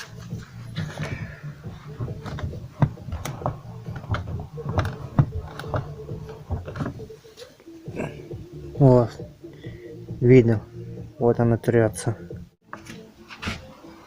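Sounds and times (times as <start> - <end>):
car door check clicking and knocking: 1.7 - 7.1.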